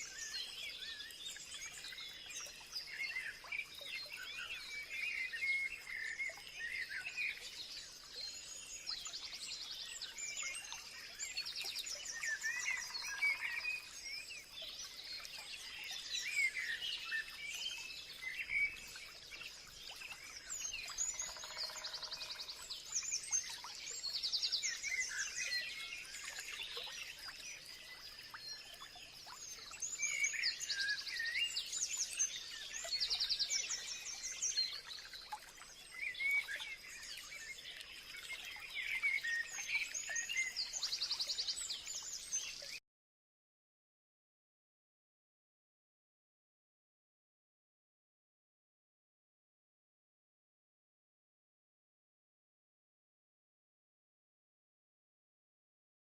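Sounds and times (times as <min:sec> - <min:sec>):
songbirds chirping and singing: 0:00.0 - 0:42.8.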